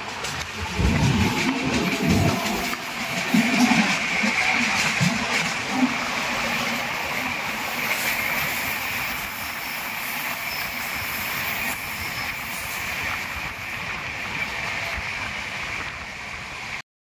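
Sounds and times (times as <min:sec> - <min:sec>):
train wheels rushing on rail: 0:00.0 - 0:16.8
faint high squeal: 0:09.1 - 0:12.8.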